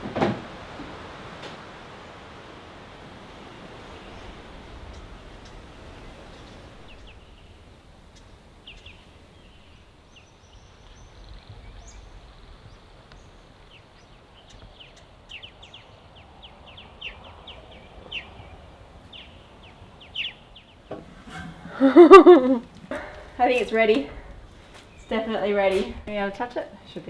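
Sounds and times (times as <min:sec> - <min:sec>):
faint outdoor background: 0:00.0 - 0:27.0
small birds chirping: 0:03.3 - 0:22.0, 0:22.6 - 0:27.0.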